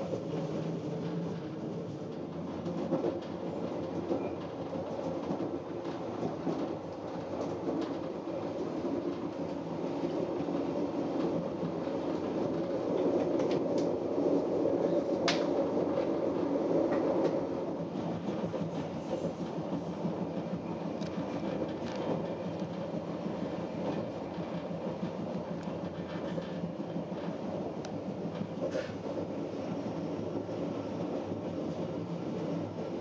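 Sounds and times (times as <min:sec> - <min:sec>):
train carriage rumbling on track: 0:00.0 - 0:33.0.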